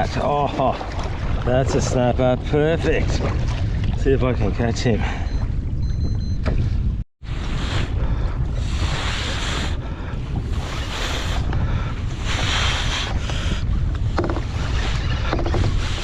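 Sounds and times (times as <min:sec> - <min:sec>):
sea water washing and splashing: 0:00.0 - 0:05.4
wind buffeting microphone: 0:00.0 - 0:16.0.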